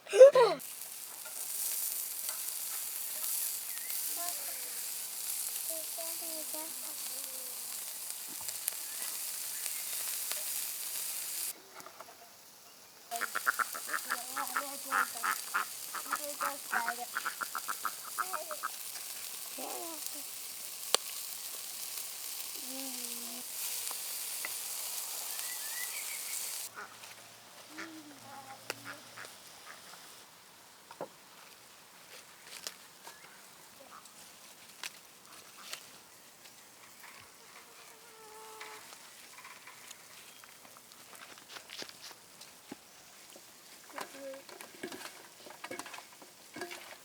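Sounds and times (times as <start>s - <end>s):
food sizzling: 0.0s - 11.6s, 13.1s - 30.6s, 32.6s - 47.0s
ducks or geese honking: 13.1s - 18.8s.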